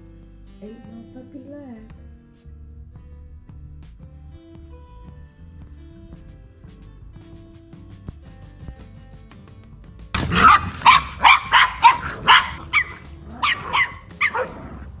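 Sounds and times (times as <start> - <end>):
faint background music: 0.0 - 15.0
dog barking: 10.2 - 14.8.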